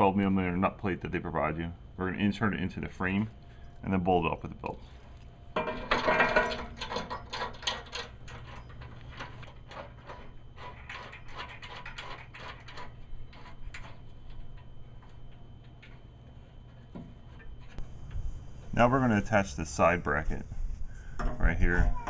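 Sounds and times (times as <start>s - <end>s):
rapid metallic clicks and clinks: 5.6s - 16.0s.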